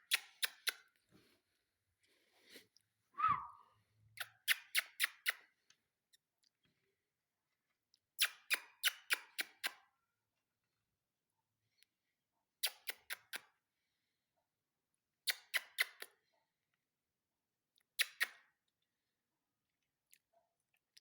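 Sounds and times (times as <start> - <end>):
brief falling chirp: 3.2 - 3.6.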